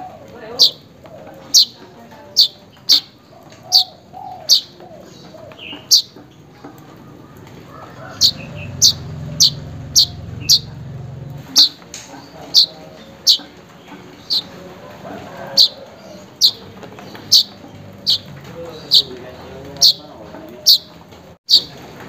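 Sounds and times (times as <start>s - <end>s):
weaver bird calling: 0.0s - 6.2s, 7.7s - 10.8s, 11.4s - 14.6s, 15.2s - 21.8s
low hum: 8.4s - 11.6s.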